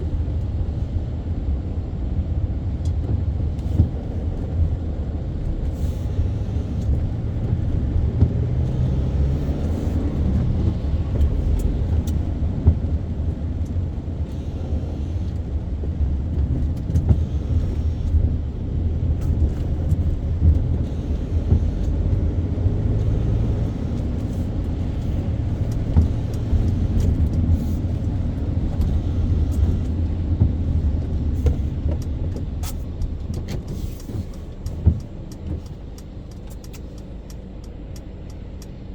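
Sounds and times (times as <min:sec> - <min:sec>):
car engine and road noise: 0:00.0 - 0:38.9
small clicks and ticks: 0:30.9 - 0:38.9.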